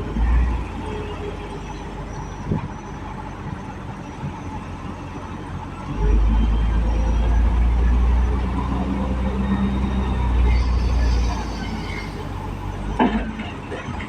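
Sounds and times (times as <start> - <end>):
truck engine and road rumble: 0.0 - 14.0.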